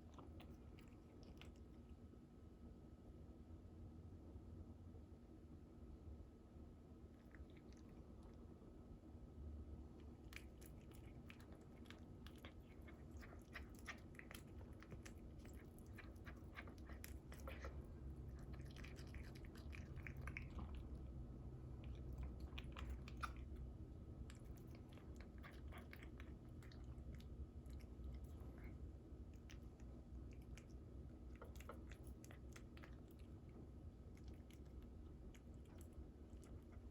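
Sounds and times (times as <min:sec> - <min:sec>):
cat chewing wet clicks: 0:00.0 - 0:02.0, 0:09.9 - 0:36.9.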